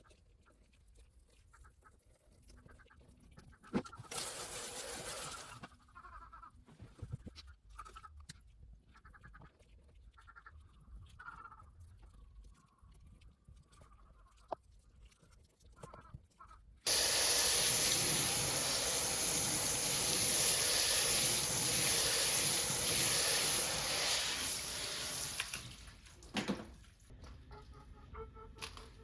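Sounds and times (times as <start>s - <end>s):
water spraying hard: 16.9s - 26.2s.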